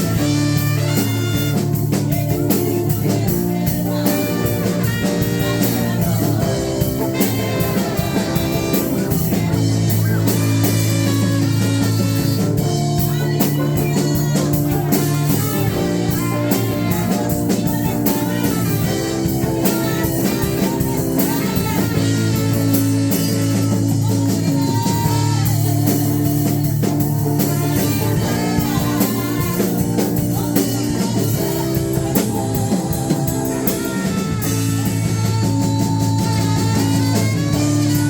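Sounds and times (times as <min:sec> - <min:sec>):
live band with guitar and drums: 0:00.0 - 0:38.0.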